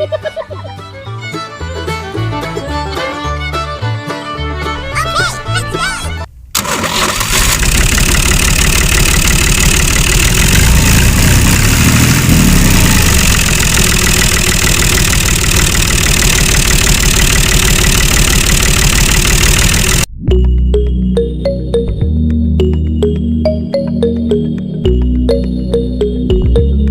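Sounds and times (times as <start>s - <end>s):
engine running loudly: 6.6s - 20.1s.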